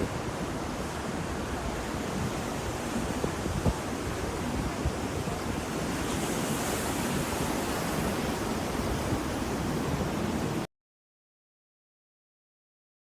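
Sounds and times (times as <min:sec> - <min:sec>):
ocean surf washing ashore: 0:00.0 - 0:10.7.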